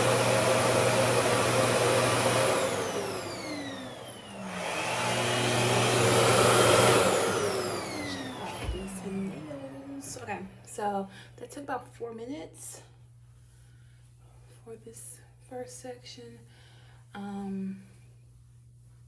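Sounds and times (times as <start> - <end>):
blow dryer motor whining: 0.0 - 11.0.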